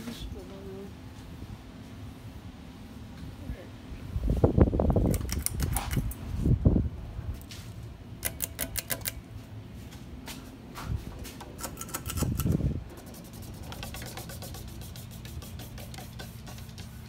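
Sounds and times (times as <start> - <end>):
ceiling fans running: 0.0 - 17.0
low whooshing air: 3.5 - 7.4, 12.1 - 12.9.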